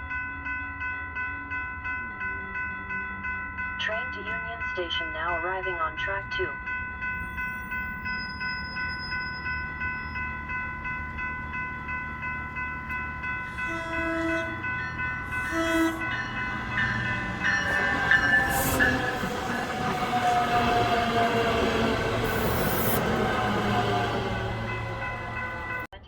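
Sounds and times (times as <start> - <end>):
warning bell ringing: 0.0 - 26.0
train rolling noise: 1.7 - 26.0
high wheel squeal: 7.3 - 10.6, 13.4 - 25.9
train horn blasts: 13.4 - 25.9.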